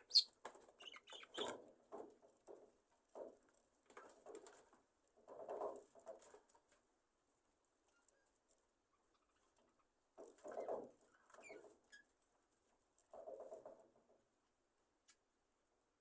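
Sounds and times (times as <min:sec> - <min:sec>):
soft bird chirps: 0:00.0 - 0:01.5.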